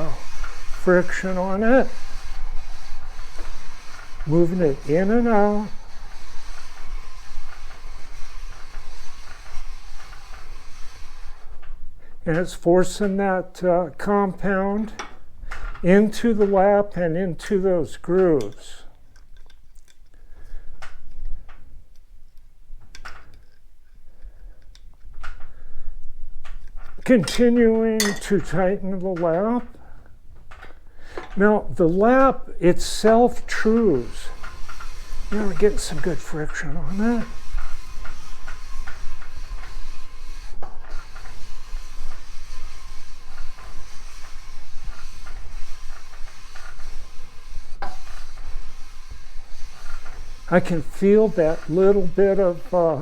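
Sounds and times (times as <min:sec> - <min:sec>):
metal lap gritty scraping: 0:00.0 - 0:18.8, 0:26.5 - 0:29.9, 0:31.2 - 0:53.0
metal lap scraping clicks: 0:32.8 - 0:47.1.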